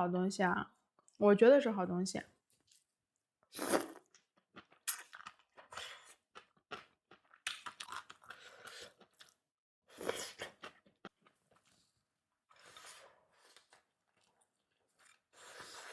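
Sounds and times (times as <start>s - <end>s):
chewing and crunching food: 3.7s - 15.9s.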